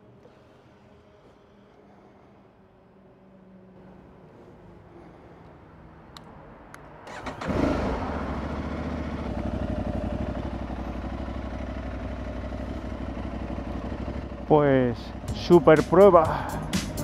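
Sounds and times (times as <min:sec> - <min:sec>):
motorcycle engine starting and idling: 0:03.8 - 0:17.0
faint clicks: 0:05.4 - 0:06.9.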